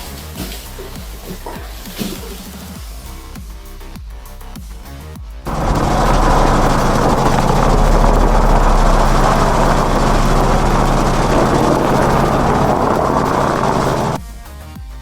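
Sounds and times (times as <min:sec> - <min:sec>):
dense rushing noise: 0:05.5 - 0:14.2
steady engine drone: 0:05.5 - 0:14.3.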